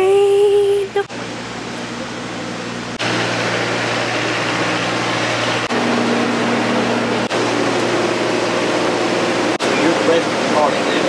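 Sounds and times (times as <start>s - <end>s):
air conditioning hiss: 0.0s - 11.0s
idling train hum: 0.0s - 11.0s.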